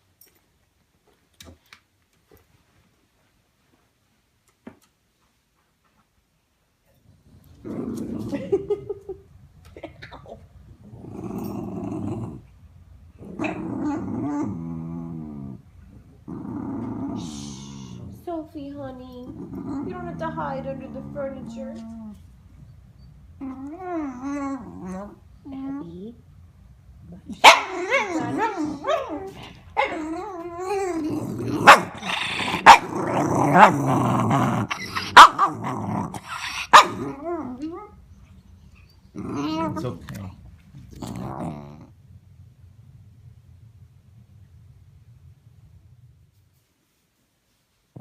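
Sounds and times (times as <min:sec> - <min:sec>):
dog growling: 0:07.2 - 0:09.0, 0:10.2 - 0:18.5, 0:19.2 - 0:22.3, 0:23.4 - 0:25.9, 0:27.0 - 0:38.0, 0:39.1 - 0:42.1
dog whining: 0:19.6 - 0:25.8, 0:27.4 - 0:40.2
dog barking sharply: 0:27.4 - 0:27.8.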